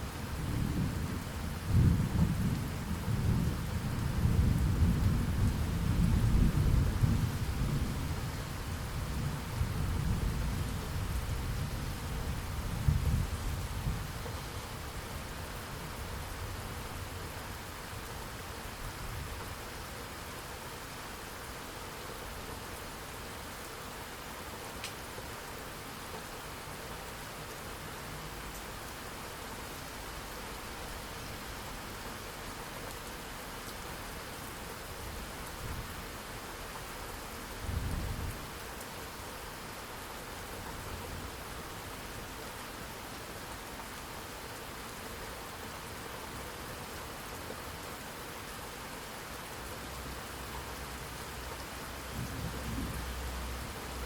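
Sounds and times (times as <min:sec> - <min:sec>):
steady rain falling: 0:00.0 - 0:54.0
low thunder rumble: 0:00.3 - 0:14.2, 0:52.1 - 0:53.6.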